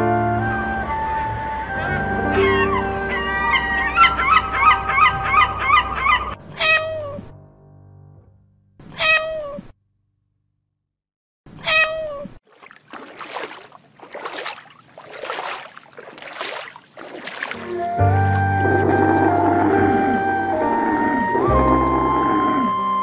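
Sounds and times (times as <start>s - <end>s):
cat meowing: 6.5s - 7.3s, 8.9s - 9.7s, 11.6s - 12.4s.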